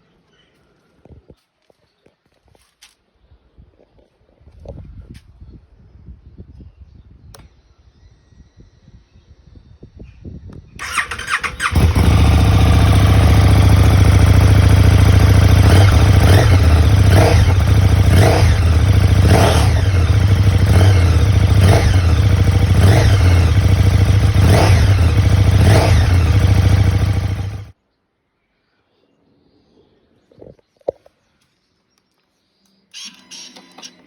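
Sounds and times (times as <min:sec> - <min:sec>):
motorcycle starter: 0:10.8 - 0:14.6, 0:32.9 - 0:34.0
motorcycle engine idling: 0:10.8 - 0:27.7.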